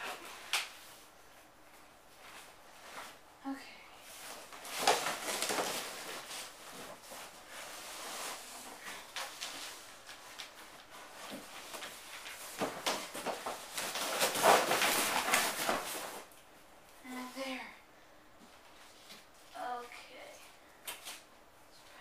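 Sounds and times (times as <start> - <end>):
packaging rustling and scraping: 4.1 - 16.3.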